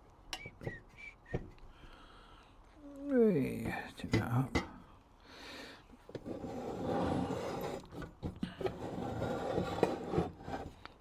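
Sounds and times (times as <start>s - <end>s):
rubbing and scraping on a work surface: 6.2s - 10.8s.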